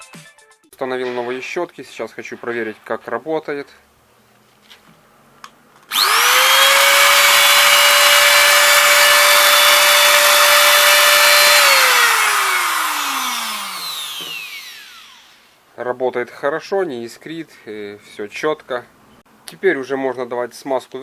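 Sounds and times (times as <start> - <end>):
angle grinder whining: 5.9 - 15.6.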